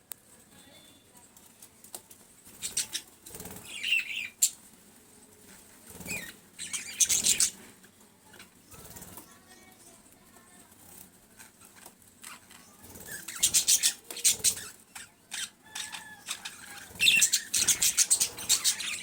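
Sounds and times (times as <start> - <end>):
birds rustling and clicking: 0.1 - 19.0
bird chirp: 2.6 - 4.6, 6.0 - 7.6, 12.3 - 19.0.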